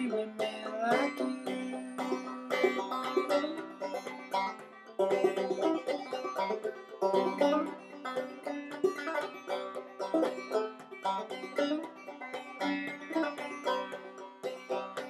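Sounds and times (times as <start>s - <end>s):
banjo playing old-time tune: 0.0s - 15.0s.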